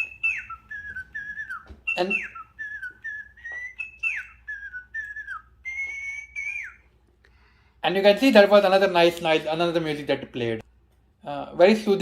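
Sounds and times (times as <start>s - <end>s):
toy bird whistling a tune: 0.0s - 6.9s.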